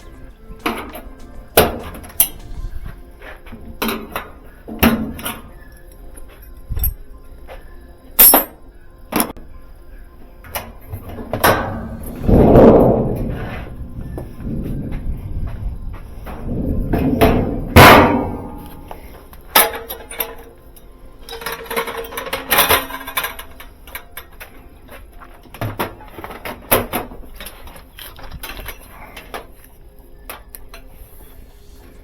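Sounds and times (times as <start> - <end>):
metal clanking and knocking: 0.0 - 3.0, 16.2 - 18.9.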